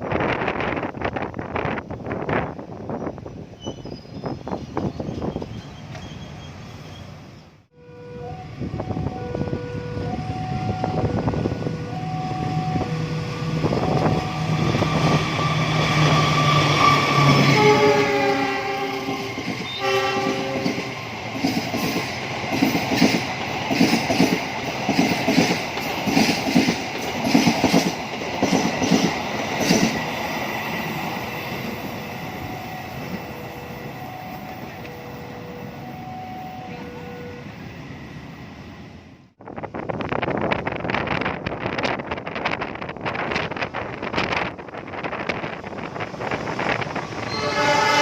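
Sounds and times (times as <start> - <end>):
train horn: 7.7 - 20.9, 32.2 - 37.6, 47.2 - 48.0.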